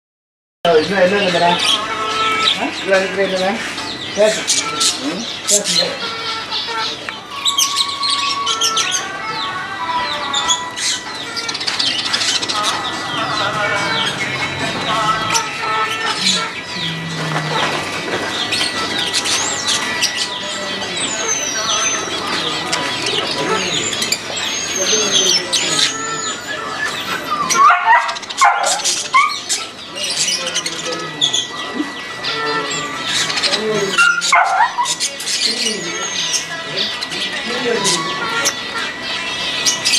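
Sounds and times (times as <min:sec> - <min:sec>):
birds chirping and calling: 0:00.7 - 0:39.9
dog yipping and whining: 0:26.8 - 0:29.5, 0:33.9 - 0:35.0.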